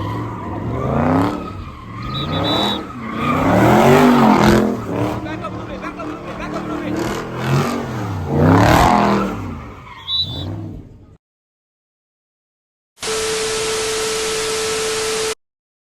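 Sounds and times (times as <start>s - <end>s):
car engine revving: 0.0s - 11.2s
high chirp: 10.0s - 10.5s.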